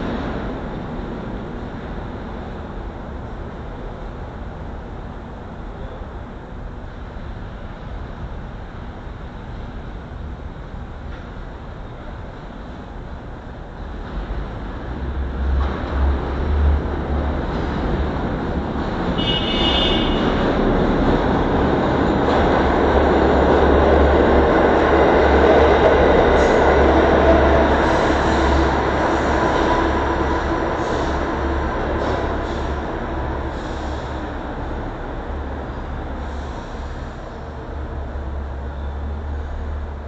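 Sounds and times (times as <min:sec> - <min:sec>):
train wheels rumbling on rail: 0:00.0 - 0:40.0
train hiss: 0:30.4 - 0:34.6, 0:36.0 - 0:37.5.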